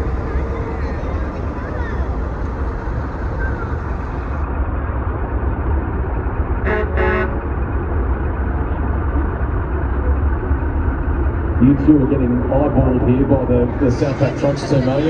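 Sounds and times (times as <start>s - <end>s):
heavy trucks rumbling: 0.0s - 15.0s
truck horn toots: 6.6s - 7.4s.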